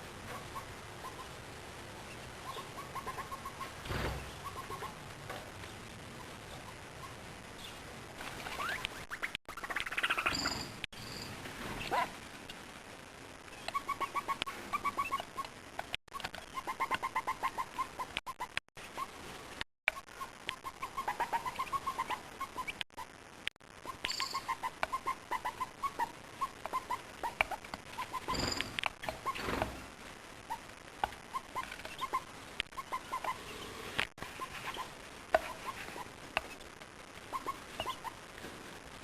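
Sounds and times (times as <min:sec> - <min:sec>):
rustling: 0:26.0 - 0:39.0.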